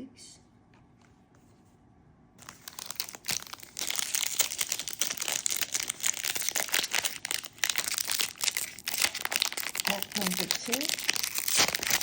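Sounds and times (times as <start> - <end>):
wrapper tearing and crinkling: 2.4 - 12.0.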